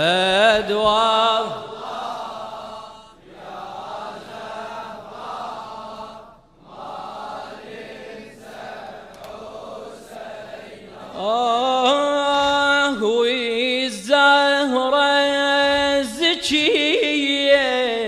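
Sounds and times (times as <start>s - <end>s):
chorus of voices chanting: 0.0s - 13.0s.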